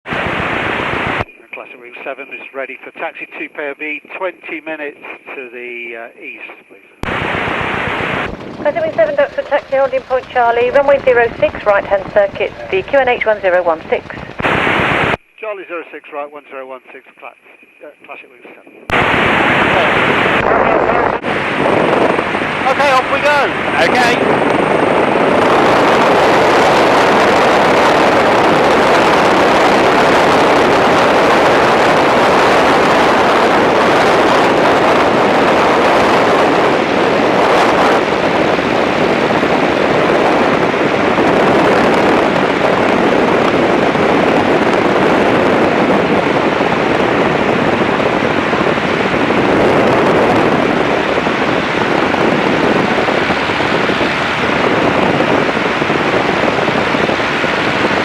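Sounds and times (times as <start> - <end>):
wind rush: 0.0 - 1.3, 7.0 - 15.2, 18.6 - 58.0
biplane engine running: 6.0 - 14.5, 18.8 - 58.0.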